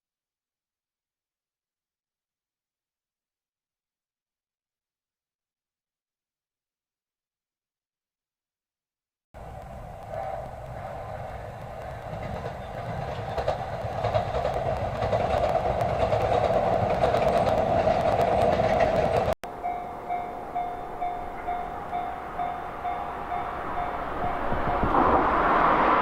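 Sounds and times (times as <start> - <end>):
train running past: 9.4 - 26.0.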